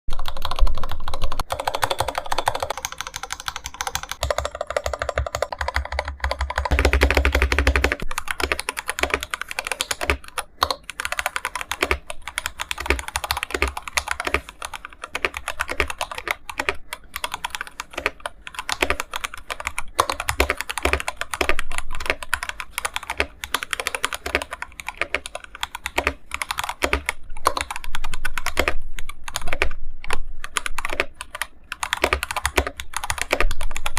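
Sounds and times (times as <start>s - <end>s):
mechanical keyboard typing: 0.1s - 33.9s.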